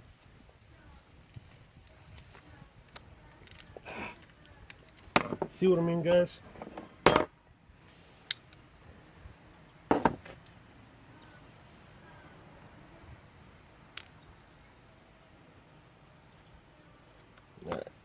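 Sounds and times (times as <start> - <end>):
clatter of knocks: 5.2 - 5.6.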